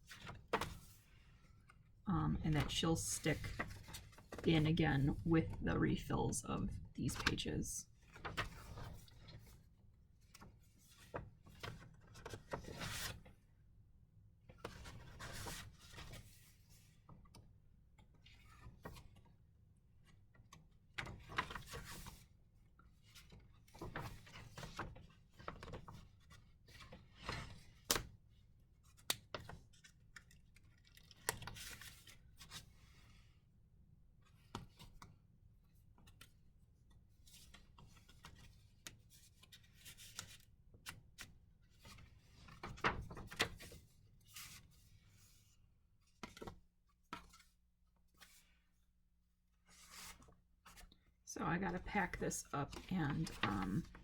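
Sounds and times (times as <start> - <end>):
pages turning: 52.7 - 54.0.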